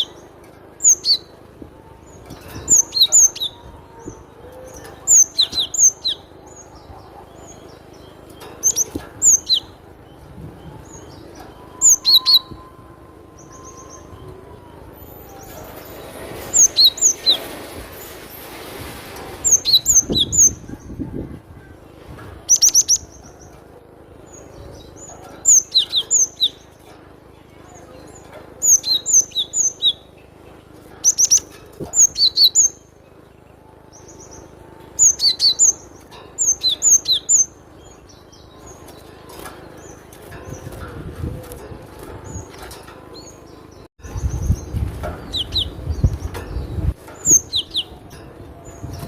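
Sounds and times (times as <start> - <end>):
bird singing high notes: 8.6 - 17.4.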